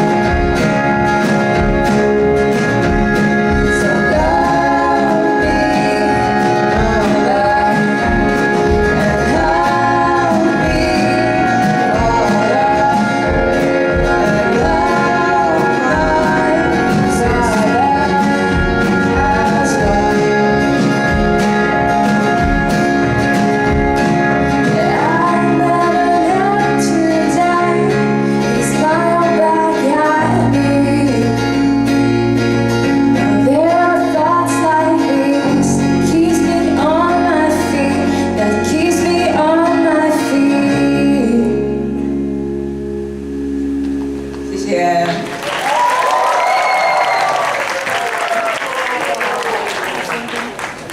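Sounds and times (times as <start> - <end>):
bass line: 0.0 - 47.4
guitar: 0.0 - 50.9
person singing: 2.8 - 22.6, 24.4 - 32.0, 32.9 - 42.0
steady drum beat: 13.2 - 24.6.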